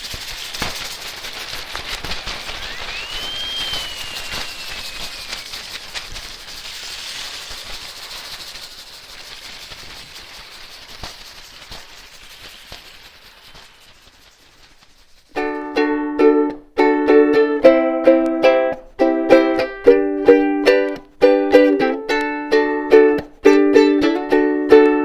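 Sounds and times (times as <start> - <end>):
rain stick pellets trickling: 0.0 - 15.5
thin whistle-like tone: 2.5 - 6.0.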